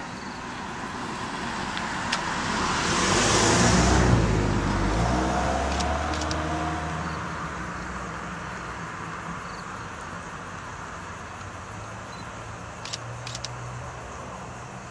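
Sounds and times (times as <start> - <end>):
car passing by: 0.0 - 11.1
steady outdoor hiss: 0.0 - 14.9
faint high ticks: 5.7 - 6.6, 11.3 - 13.9.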